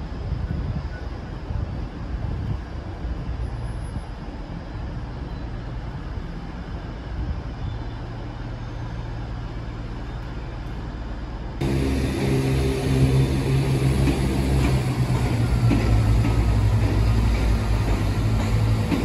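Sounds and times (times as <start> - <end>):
trains rumbling in station: 0.0 - 19.0
low hum: 11.6 - 19.0.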